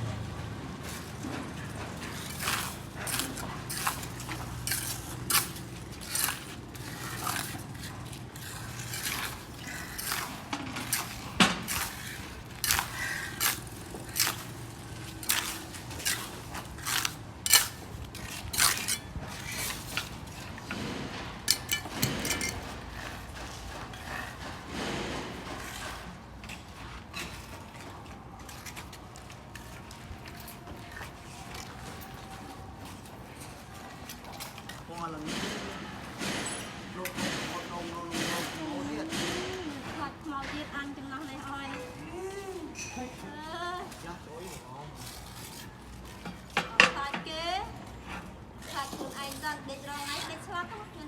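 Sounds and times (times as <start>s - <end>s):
roof tiles clinking and scraping: 0.8s - 24.2s.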